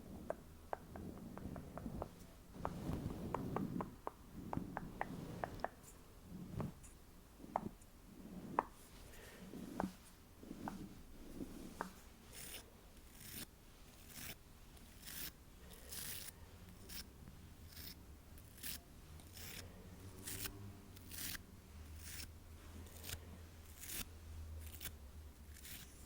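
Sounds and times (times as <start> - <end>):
faint low hum: 0.0 - 26.0
crisp swishing strokes: 0.9 - 12.0.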